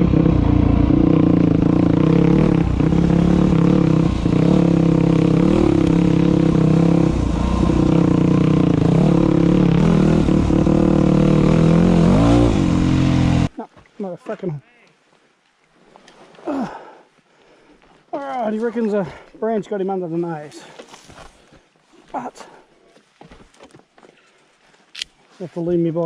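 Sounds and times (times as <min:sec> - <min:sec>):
dirt bike engine running: 0:00.0 - 0:13.5.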